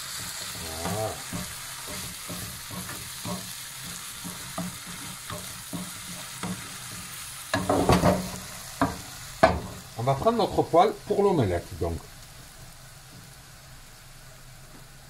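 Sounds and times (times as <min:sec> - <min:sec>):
spatula scraping a pan: 0:00.0 - 0:09.8
food sizzling in a pan: 0:00.0 - 0:15.0.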